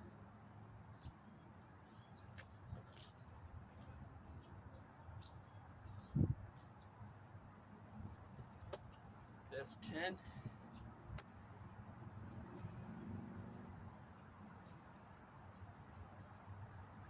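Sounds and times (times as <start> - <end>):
wind rumbling on microphone: 6.0 - 6.5.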